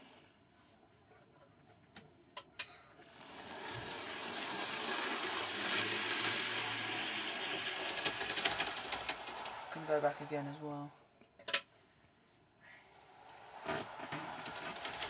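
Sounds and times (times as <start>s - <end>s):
model train motor whirring: 3.0s - 10.4s, 12.9s - 15.0s.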